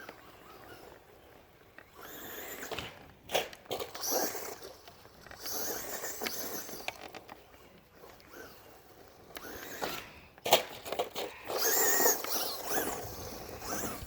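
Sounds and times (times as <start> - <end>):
toy truck running over rough ground: 0.0 - 14.0.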